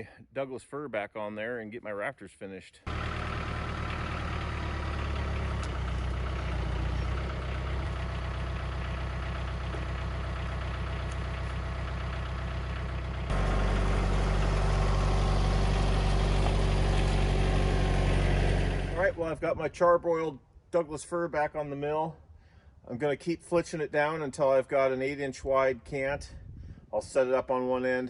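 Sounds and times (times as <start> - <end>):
engine running steadily: 2.9 - 19.4.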